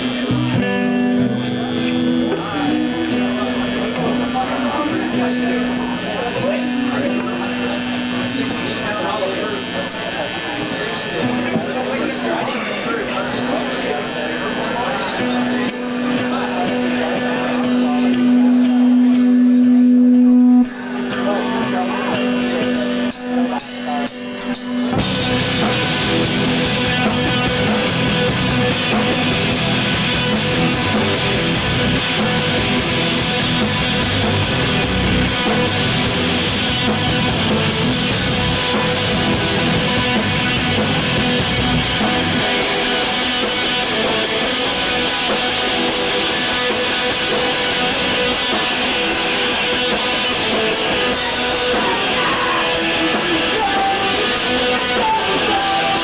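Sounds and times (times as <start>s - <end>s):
electric guitars: 0.0s - 56.0s
drum kit: 15.3s - 56.0s.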